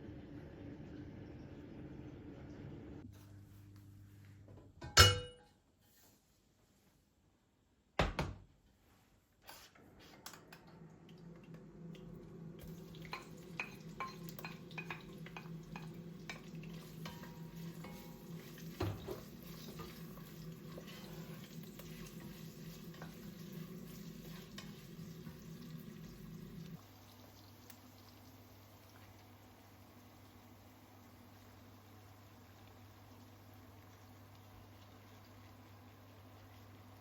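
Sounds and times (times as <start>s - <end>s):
utensil clinking in cookware: 4.8s - 5.5s, 13.0s - 20.0s
light sizzling: 9.4s - 37.0s.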